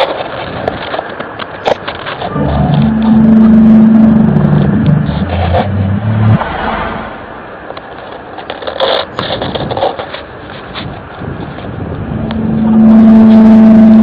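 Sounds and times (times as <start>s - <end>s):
outdoor background noise: 0.0s - 14.0s
low horn-like droning tones: 2.2s - 7.3s, 12.1s - 14.0s.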